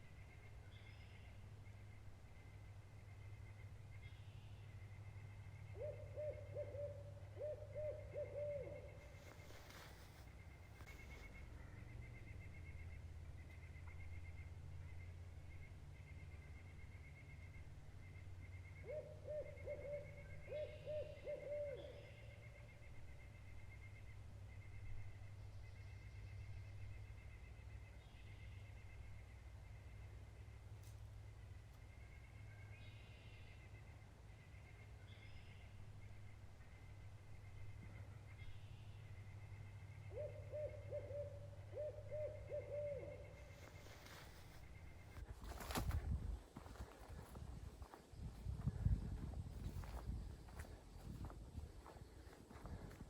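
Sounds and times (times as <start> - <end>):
faint outdoor background: 0.0 - 53.0
bird hooting: 5.2 - 10.0, 18.5 - 23.0, 39.6 - 45.8.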